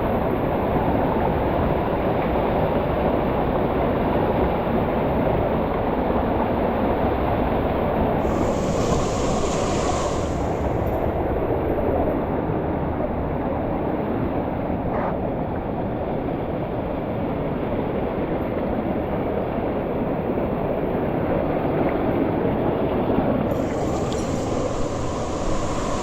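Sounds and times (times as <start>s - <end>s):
waterfall roaring: 8.2s - 11.5s, 23.5s - 26.0s.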